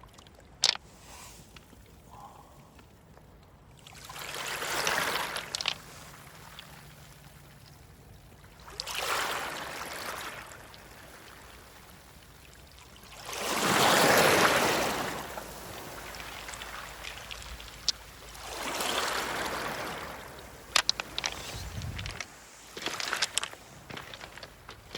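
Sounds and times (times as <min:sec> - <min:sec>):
waves washing on pebbles: 0:03.8 - 0:07.9, 0:08.5 - 0:24.9.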